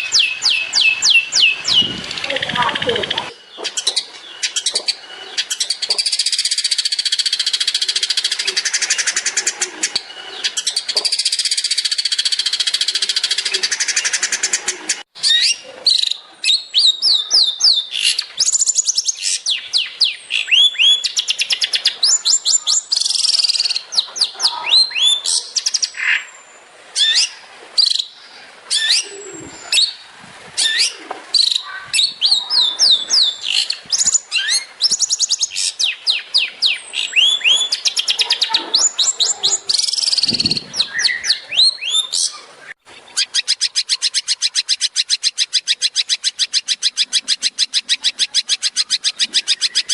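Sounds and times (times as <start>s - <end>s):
bird singing whistled notes: 0.0s - 14.3s, 15.2s - 26.3s, 30.6s - 42.4s.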